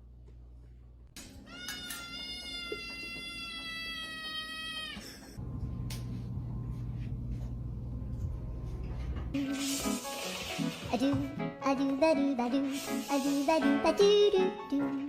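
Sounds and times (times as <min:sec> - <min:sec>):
low steady hum: 0:05.2 - 0:09.4.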